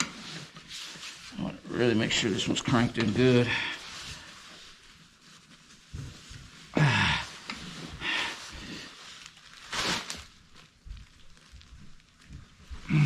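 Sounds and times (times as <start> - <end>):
man grunting and breathing hard: 6.7 - 7.4.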